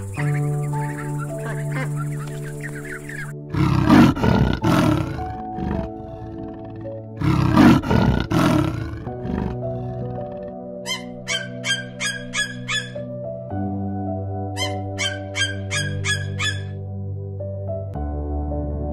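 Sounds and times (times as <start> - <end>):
background music: 0.0 - 18.9
big cat roaring: 3.5 - 10.6.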